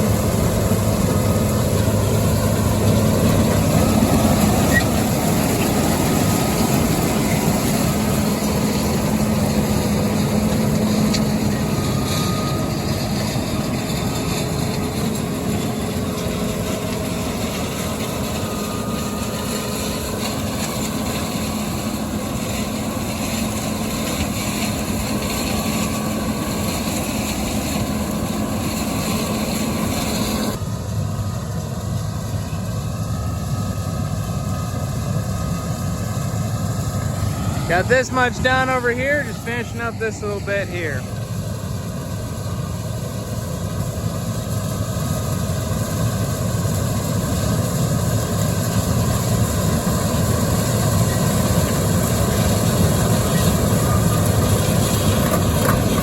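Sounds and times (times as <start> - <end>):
combine harvester droning: 0.0 - 56.0.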